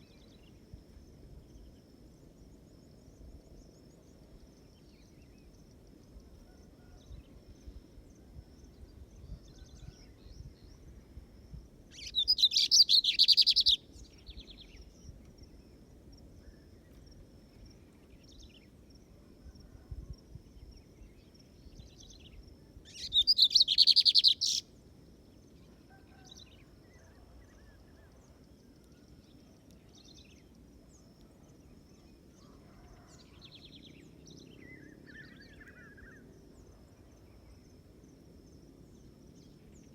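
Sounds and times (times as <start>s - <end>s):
bird singing trilled songs: 11.9s - 15.2s, 20.6s - 24.6s.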